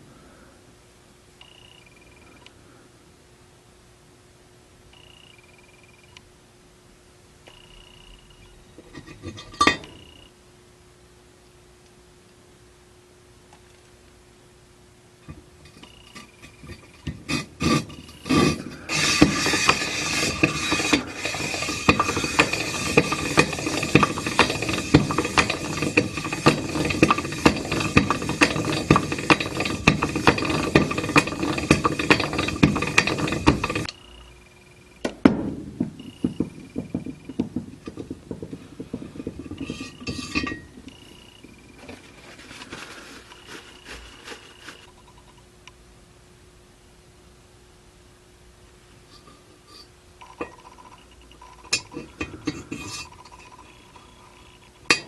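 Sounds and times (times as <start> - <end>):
clicking and rattling: 15.7 - 34.0
metal scraping with rapid clicks: 15.7 - 34.0, 36.0 - 45.2, 49.2 - 55.0.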